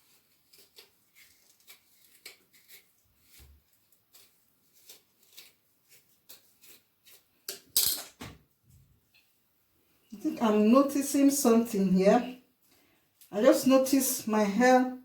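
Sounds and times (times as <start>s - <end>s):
comb strokes through hair: 0.0s - 7.3s.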